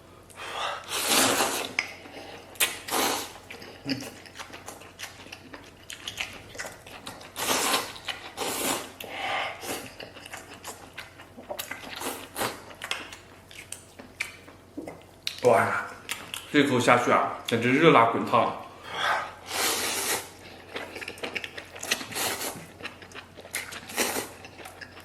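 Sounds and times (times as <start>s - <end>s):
person slurping food: 0.8s - 1.8s, 2.9s - 3.4s, 7.4s - 9.9s, 18.9s - 20.4s.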